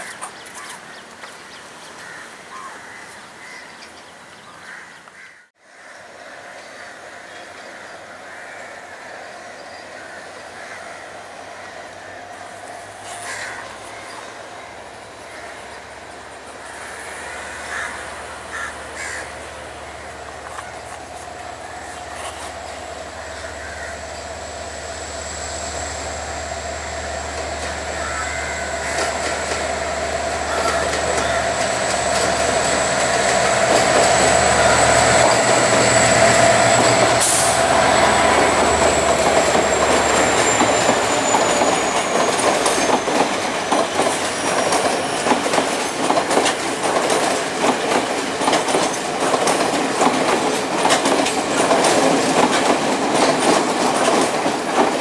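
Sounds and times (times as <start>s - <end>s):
diesel locomotive engine: 6.0s - 55.0s
wheels clacking over rail joints: 26.5s - 55.0s.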